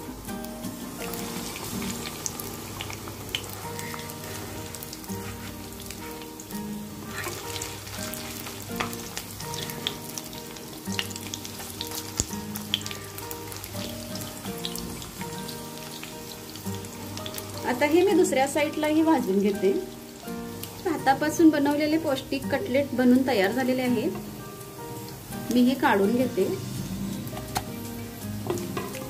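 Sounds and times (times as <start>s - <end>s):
cutlets sizzling and popping in oil: 0.0s - 29.0s
soft background music: 0.0s - 29.0s
wooden spatula scraping: 3.4s - 6.0s, 7.0s - 10.2s.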